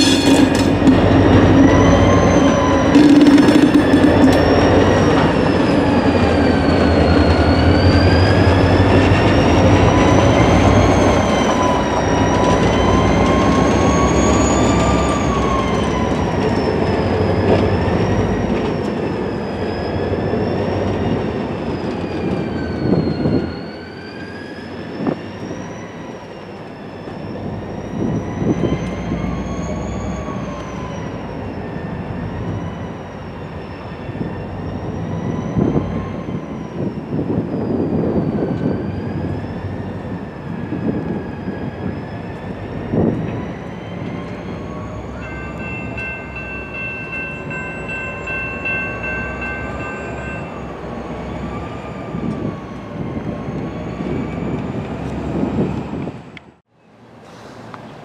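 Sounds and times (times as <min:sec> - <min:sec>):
train rumbling over rails: 0:00.0 - 0:58.0
high wavering ringing tone: 0:45.2 - 0:50.8.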